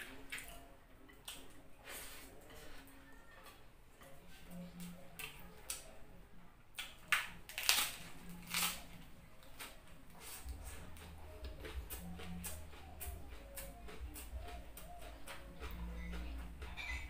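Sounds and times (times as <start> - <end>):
lettuce crunching: 6.8 - 15.0
wet chewing: 6.8 - 17.0.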